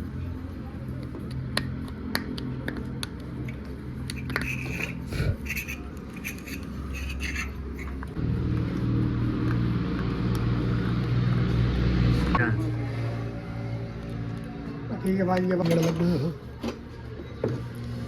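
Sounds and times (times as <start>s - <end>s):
low mechanical hum: 0.0s - 14.8s
metal parts clicking and scraping: 3.5s - 8.1s.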